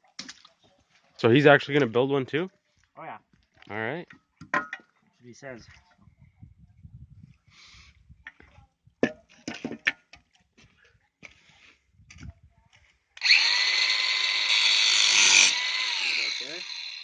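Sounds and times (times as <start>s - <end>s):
power tool whining: 13.2s - 17.0s.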